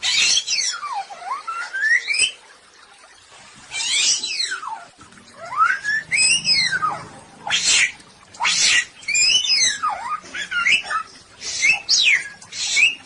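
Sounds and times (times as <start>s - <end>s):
songbird whistling: 7.6s - 13.0s.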